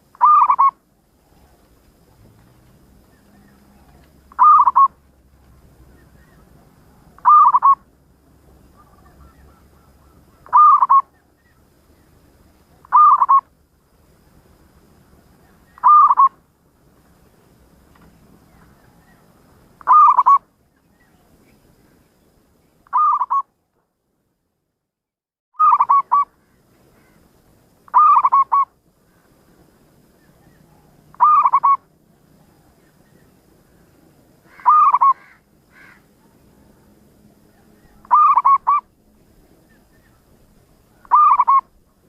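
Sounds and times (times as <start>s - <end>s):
dove cooing: 0.0s - 2.3s, 3.0s - 5.0s, 6.2s - 7.9s, 8.7s - 11.3s, 12.8s - 13.5s, 15.7s - 16.4s, 19.8s - 20.4s, 22.9s - 23.4s, 25.6s - 26.3s, 27.9s - 28.7s, 30.4s - 31.9s, 34.5s - 36.0s, 37.5s - 38.9s, 40.9s - 41.8s.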